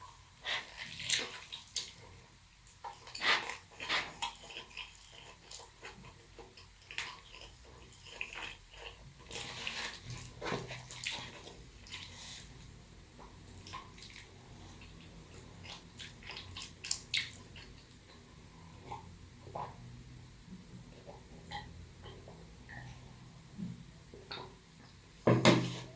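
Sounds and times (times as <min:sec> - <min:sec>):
chewing with wet mouth smacks: 0:00.7 - 0:12.2, 0:13.5 - 0:18.2.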